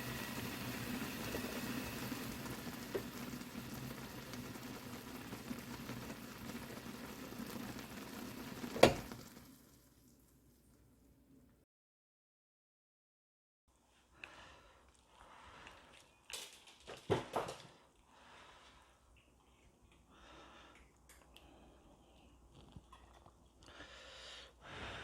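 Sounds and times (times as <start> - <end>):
pot boiling: 0.0 - 11.0.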